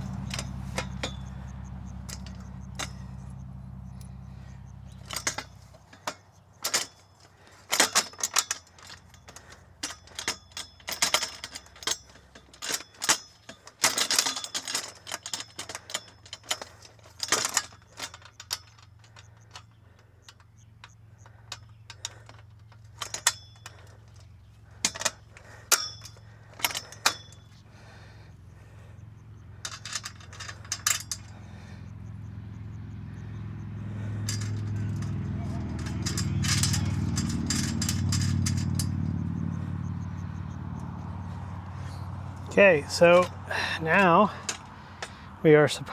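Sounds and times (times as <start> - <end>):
low steady hum: 0.0 - 6.4
metal parts clinking: 0.0 - 45.9.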